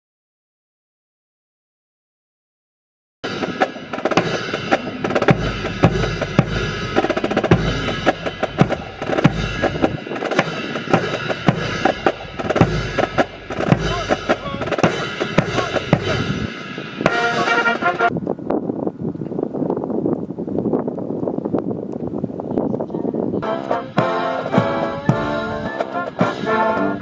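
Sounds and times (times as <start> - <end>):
bass drum and snare beating: 3.2 - 18.1
military band playing: 3.2 - 18.2, 23.4 - 27.0.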